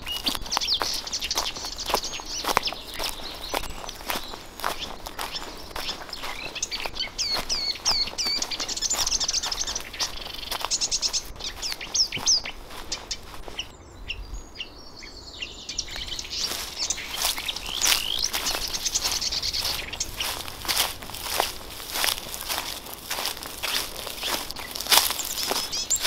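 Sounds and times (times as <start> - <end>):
footsteps crunching on forest floor: 0.0 - 13.8, 15.7 - 26.0
small birds chirping: 0.0 - 26.0.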